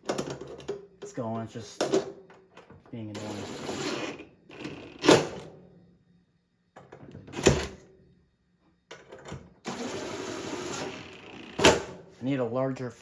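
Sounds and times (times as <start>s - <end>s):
rough grinding noise: 3.2s - 5.2s, 9.7s - 11.7s.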